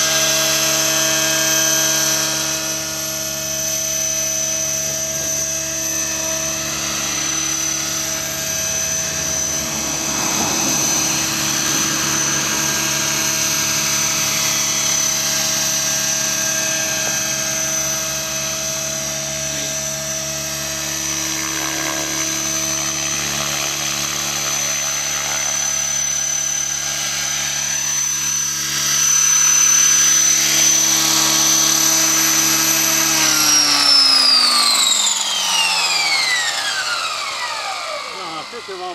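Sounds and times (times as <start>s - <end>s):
high-pitched motor whine: 0.0s - 38.9s
rotors buzzing: 28.8s - 38.9s.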